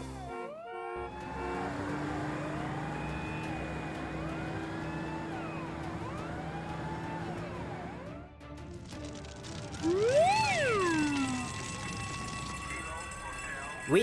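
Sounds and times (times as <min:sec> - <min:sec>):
siren-like wails: 0:00.3 - 0:08.3, 0:09.8 - 0:14.0
cartoon engine running: 0:08.9 - 0:14.0.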